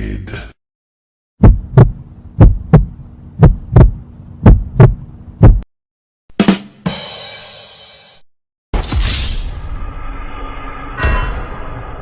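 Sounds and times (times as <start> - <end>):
faint hum: 1.4 - 5.6
heartbeat thumps: 1.4 - 5.7
ringing sharp hit: 9.6 - 12.0.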